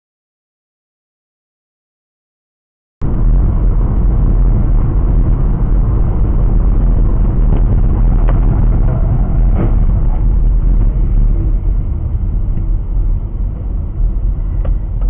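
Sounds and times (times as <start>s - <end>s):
vehicle engine and road noise: 3.0s - 15.0s.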